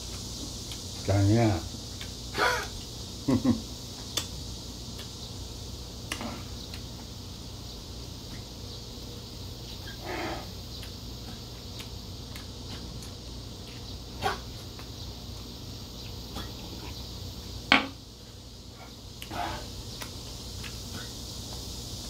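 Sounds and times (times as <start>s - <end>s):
low room hum: 0.0s - 22.0s
chewing clicks and smacks: 1.9s - 2.2s, 4.0s - 5.2s, 10.7s - 13.9s, 19.1s - 21.0s.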